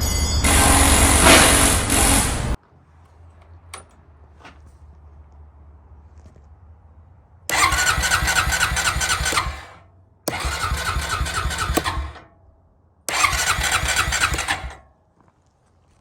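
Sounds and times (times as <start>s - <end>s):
electric starter cranking engine: 0.4s - 2.6s, 7.5s - 12.4s, 13.1s - 14.9s.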